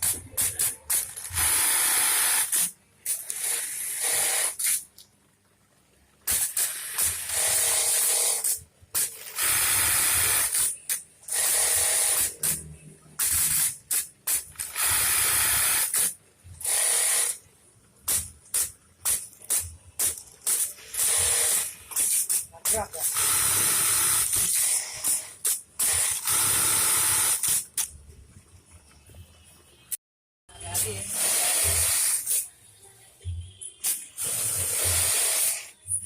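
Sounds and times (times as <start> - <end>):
sewing machine rapid stitching: 0.0 - 4.8, 6.3 - 17.4, 19.6 - 22.3, 23.0 - 27.8, 30.9 - 32.3, 34.2 - 35.7.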